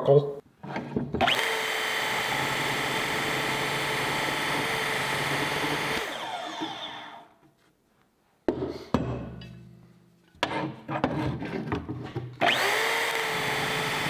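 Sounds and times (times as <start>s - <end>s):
power tool cutting steel: 1.2s - 7.3s, 12.4s - 14.0s.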